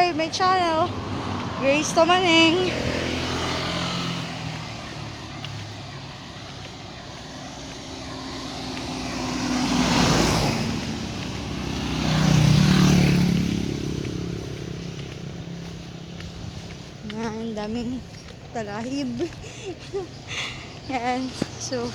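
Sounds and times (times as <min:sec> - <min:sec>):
road vehicles passing: 0:00.0 - 0:21.9.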